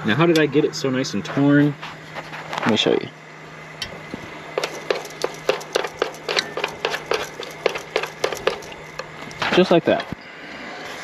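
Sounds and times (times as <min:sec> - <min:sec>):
chopsticks tapping and scraping a pan: 0:04.6 - 0:09.2.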